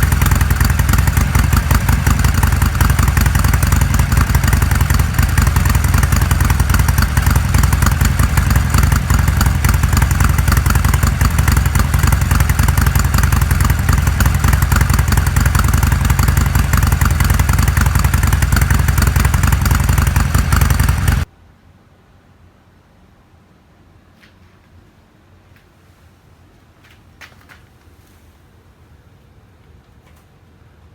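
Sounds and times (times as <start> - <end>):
motorcycle engine running: 0.0 - 21.3.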